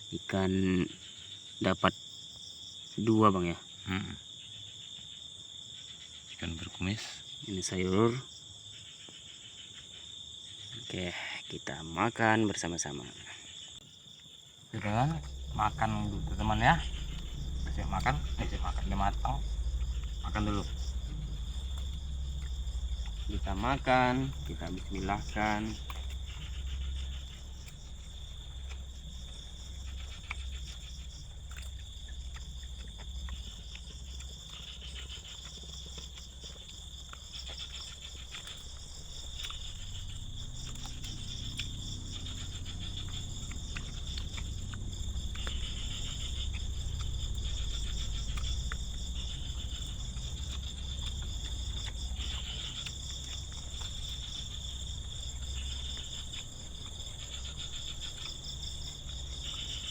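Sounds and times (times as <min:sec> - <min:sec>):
crickets chirping: 0:00.0 - 0:59.9
low rumble: 0:14.8 - 0:59.9.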